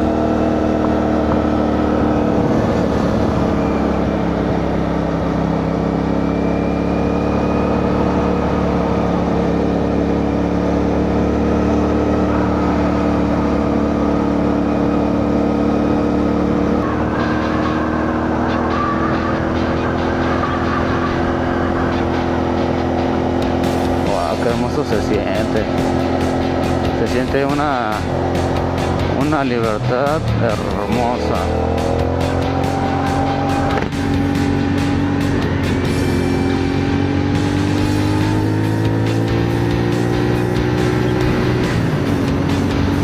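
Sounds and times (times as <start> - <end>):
motorcycle engine cruising: 0.0 - 43.0
wind rush on microphone: 0.8 - 4.0.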